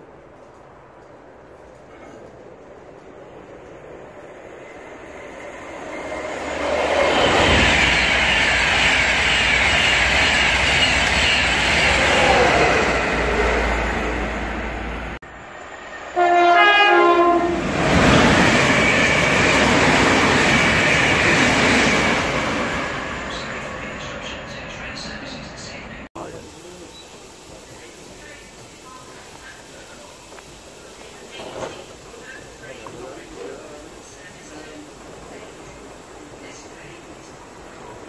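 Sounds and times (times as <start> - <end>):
trains rushing past: 0.0 - 38.0
train horn alternating tones: 16.1 - 17.7.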